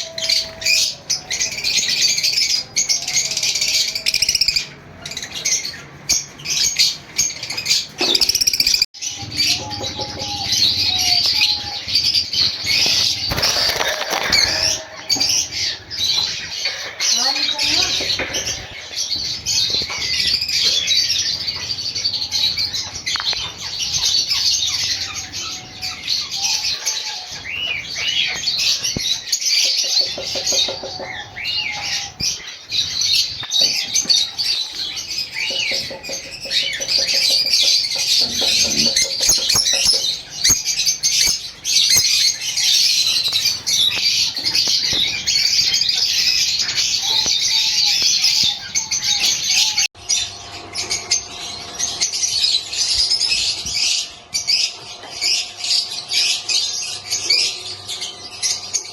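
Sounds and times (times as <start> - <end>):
lovebirds chirping and squawking: 0.0 - 58.9
low rattling bird call: 8.0 - 21.2.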